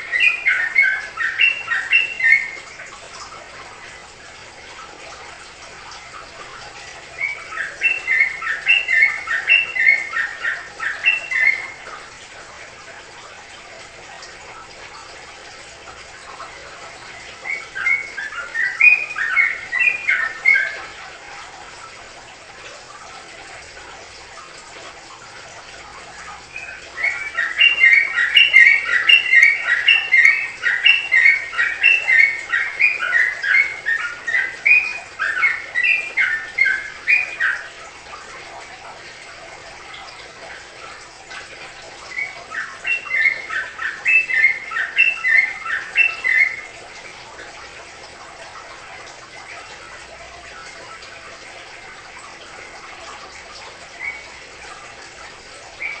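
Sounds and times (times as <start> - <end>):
songbird singing: 0.0 - 2.7, 7.1 - 11.8, 17.1 - 20.9, 26.5 - 37.7, 42.1 - 46.6, 54.0 - 54.3, 55.8 - 56.0
faint steady hiss: 0.0 - 56.0.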